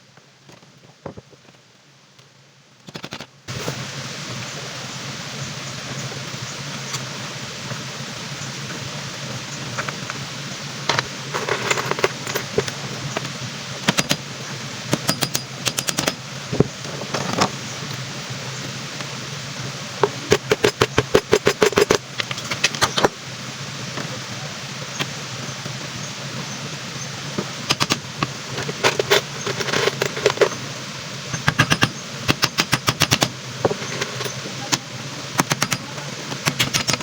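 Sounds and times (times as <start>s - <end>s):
rapid clicks and knocks on wood: 2.8s - 3.3s, 13.8s - 14.2s, 14.9s - 17.5s, 20.0s - 23.2s, 27.4s - 30.6s, 31.4s - 34.8s, 35.4s - 37.0s.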